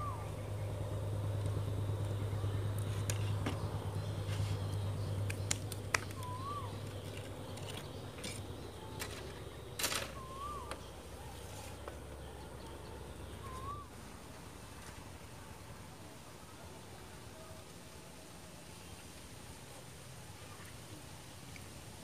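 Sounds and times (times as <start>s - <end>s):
bird whistling call: 0.0s - 0.5s, 6.0s - 9.2s, 9.8s - 11.4s, 13.3s - 13.9s
rustling of things handled: 2.8s - 12.1s
sharp clicks: 5.2s - 6.3s.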